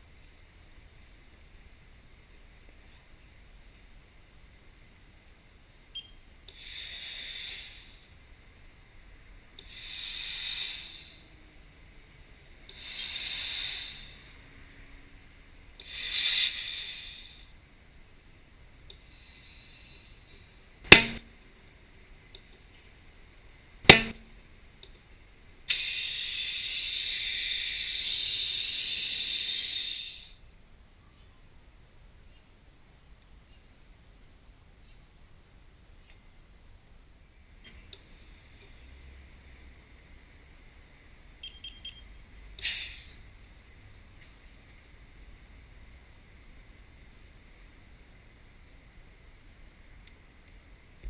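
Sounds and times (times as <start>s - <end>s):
compressed air hissing: 6.5s - 8.3s, 9.6s - 11.5s, 12.6s - 14.6s, 15.8s - 17.6s, 18.9s - 21.3s, 23.9s - 24.2s, 25.7s - 30.4s, 37.9s - 39.0s, 42.6s - 43.4s
tyre bead bangs: 20.9s - 21.3s, 23.9s - 24.3s.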